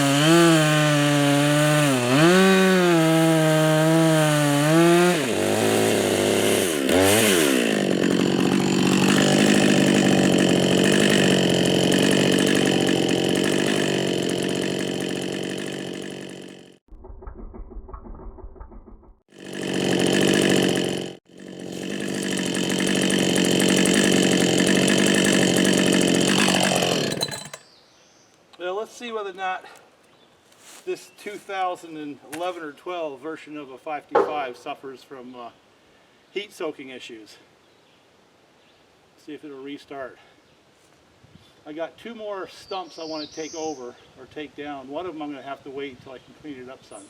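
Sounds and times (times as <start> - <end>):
chainsaw cutting wood: 0.0 - 17.5, 19.3 - 27.7, 34.2 - 34.7.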